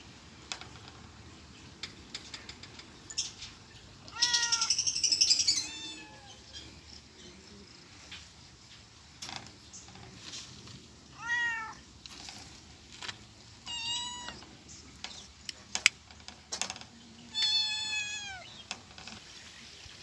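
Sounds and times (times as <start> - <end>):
cat meowing: 4.1 - 4.8, 5.4 - 6.4, 11.2 - 11.8, 13.6 - 14.4, 17.3 - 18.5.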